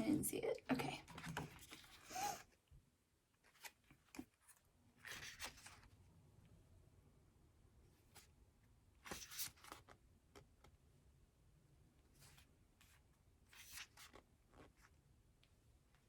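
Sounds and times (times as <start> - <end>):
rustling paper pages: 1.0 - 2.4, 3.4 - 6.0, 9.0 - 10.5, 12.2 - 15.0.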